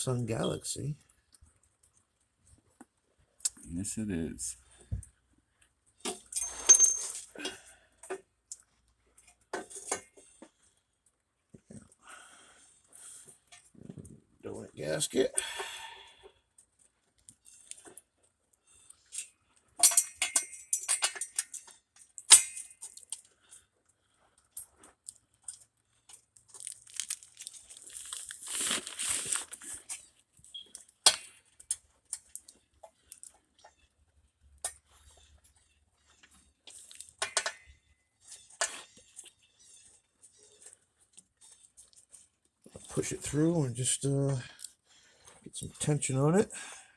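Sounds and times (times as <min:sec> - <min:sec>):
exhaust parts clicking and scraping: 0:06.0 - 0:10.7, 0:18.8 - 0:23.4, 0:24.4 - 0:46.8
rustling scrape: 0:27.2 - 0:30.1.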